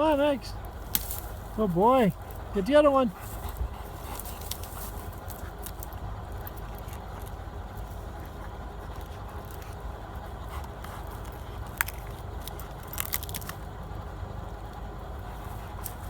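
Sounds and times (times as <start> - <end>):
steady low rumble: 0.0 - 16.0
dog tearing at small trees: 0.1 - 14.1, 14.7 - 16.0
wood snapping: 0.6 - 1.6, 3.4 - 9.8, 10.6 - 13.8.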